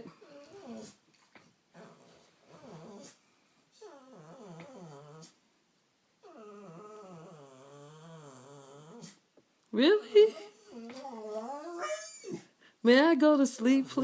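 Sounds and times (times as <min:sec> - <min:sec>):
dog whining groans: 0:00.0 - 0:01.0, 0:01.7 - 0:03.2, 0:03.8 - 0:05.4, 0:06.2 - 0:09.2, 0:10.3 - 0:12.5.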